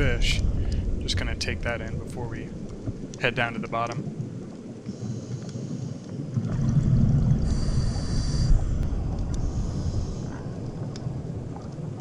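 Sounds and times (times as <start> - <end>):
bubbling exhaled air underwater: 4.0 - 12.0.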